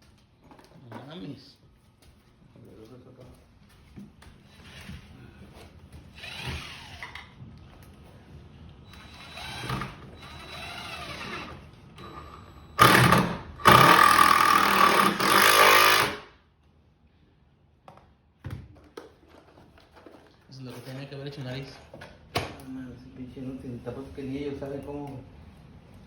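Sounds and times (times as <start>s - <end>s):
power drill running: 6.1s - 7.2s, 8.9s - 16.3s.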